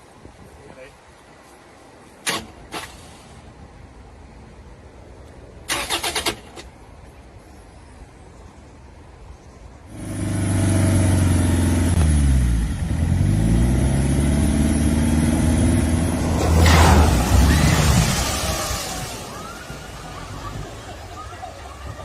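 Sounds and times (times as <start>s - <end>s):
rushing wash of noise: 14.8s - 21.7s.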